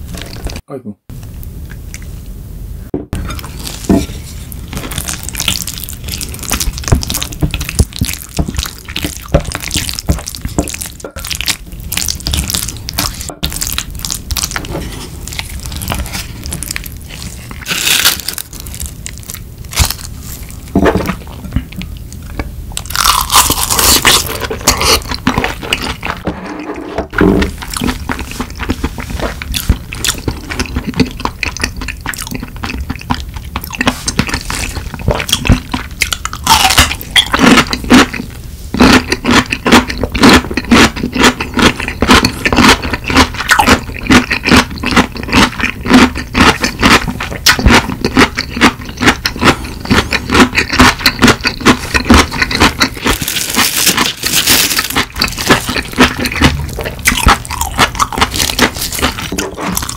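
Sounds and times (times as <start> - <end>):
person chewing and smacking: 3.1 - 26.2, 27.2 - 59.9
wooden spoon scraping a bowl: 14.6 - 15.3, 26.1 - 27.6.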